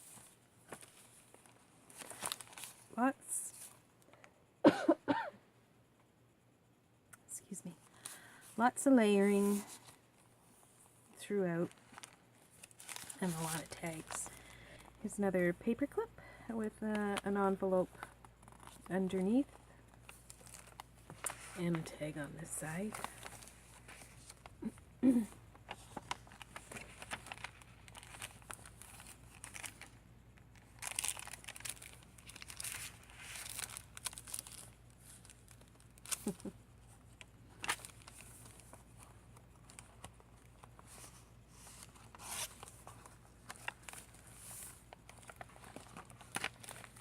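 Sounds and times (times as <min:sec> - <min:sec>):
paper and card rustling: 0:00.0 - 0:03.8, 0:11.7 - 0:15.0, 0:16.8 - 0:30.0, 0:30.6 - 0:47.0.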